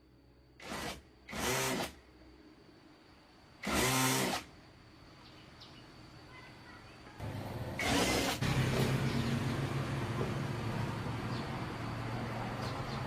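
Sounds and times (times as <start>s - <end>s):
electric drill running: 0.6s - 2.0s, 3.6s - 4.5s, 7.8s - 8.4s.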